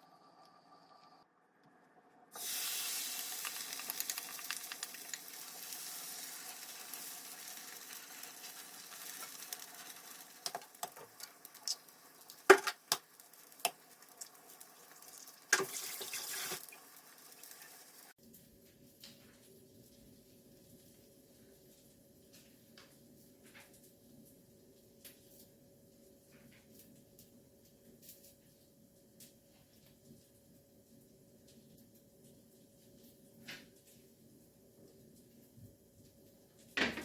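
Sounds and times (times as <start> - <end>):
tap water running into sink: 15.5 - 16.8.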